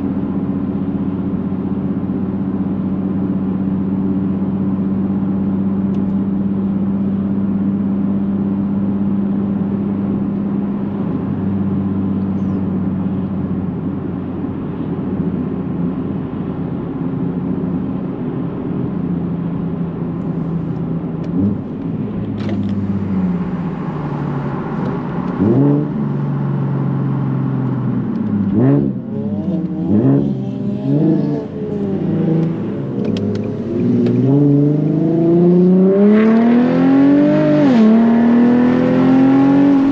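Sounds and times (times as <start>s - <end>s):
car engine revving: 19.5s - 39.9s.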